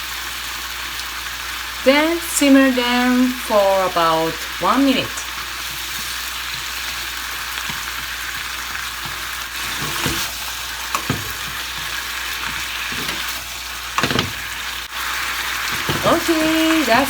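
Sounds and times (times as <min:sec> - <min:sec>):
meat sizzling in a pan: 0:00.0 - 0:17.0
stirring knocks: 0:10.9 - 0:13.3, 0:14.0 - 0:14.5.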